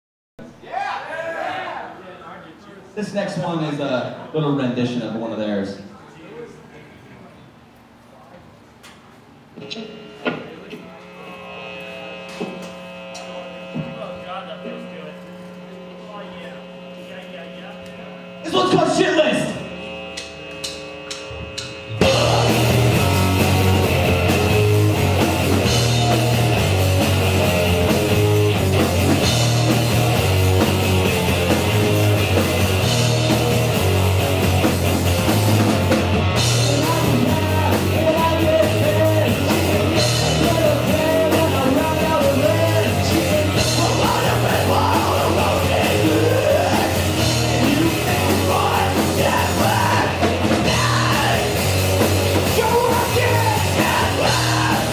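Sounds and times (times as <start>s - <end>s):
punk rock band playing: 18.0s - 54.9s
person singing: 22.0s - 23.4s, 36.5s - 51.6s, 52.4s - 54.9s.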